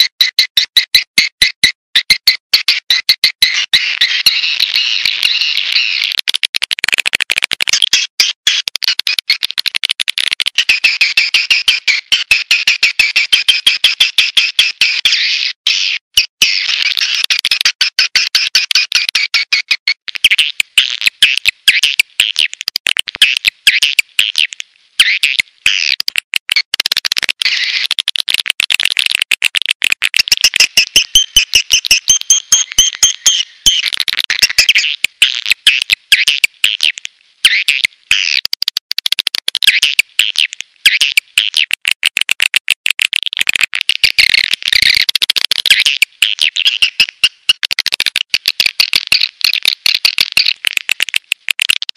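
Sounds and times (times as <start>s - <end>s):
swiftlets twittering and clicking: 6.0s - 12.3s, 20.2s - 51.9s.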